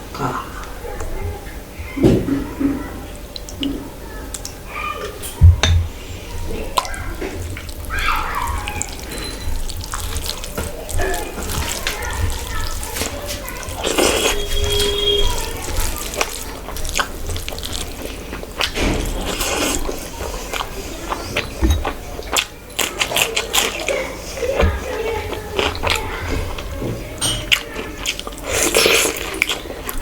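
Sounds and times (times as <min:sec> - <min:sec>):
wet eating sounds: 0:06.1 - 0:30.0.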